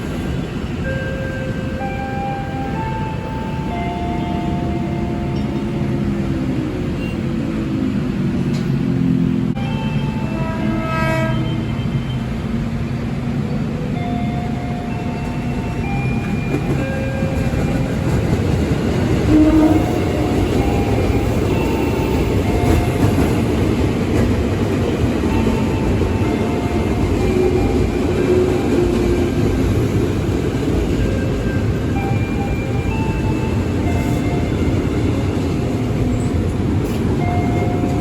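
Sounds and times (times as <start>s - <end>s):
train wheels rumbling: 0.0s - 38.0s
train horn: 9.6s - 12.2s, 19.2s - 21.3s.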